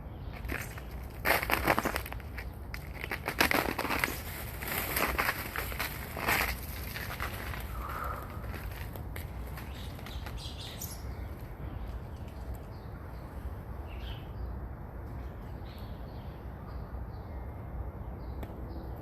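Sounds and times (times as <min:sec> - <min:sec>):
steady low rumble: 0:00.0 - 0:13.9
snow crunching: 0:00.4 - 0:10.4.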